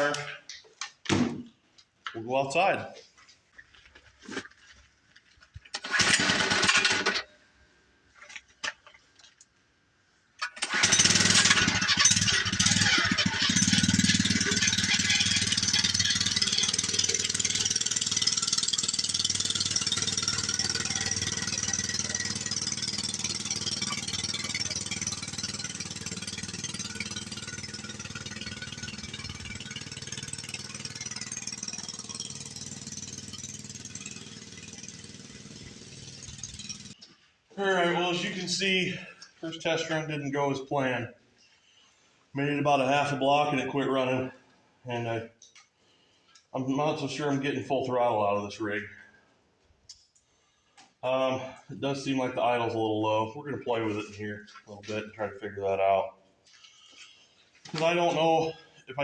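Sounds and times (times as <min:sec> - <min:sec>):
small motor running: 0:10.8 - 0:37.0.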